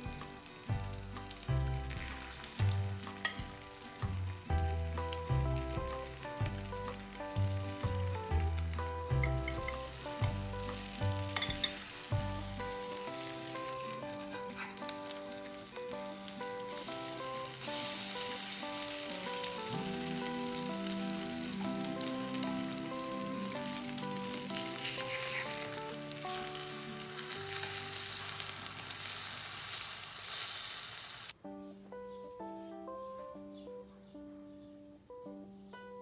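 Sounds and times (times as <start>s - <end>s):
food sizzling in a pan: 0.0s - 31.4s
plucked note music: 4.5s - 27.8s.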